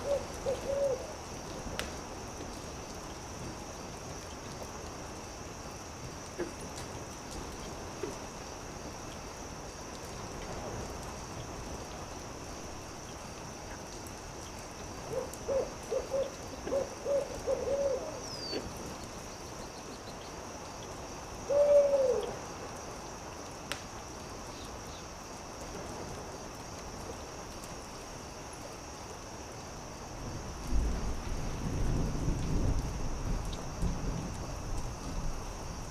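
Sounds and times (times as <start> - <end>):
owl hooting: 0.0 - 1.2, 15.1 - 18.6, 21.5 - 22.3
campfire crackling: 0.0 - 35.9
steady high hiss: 0.0 - 35.9.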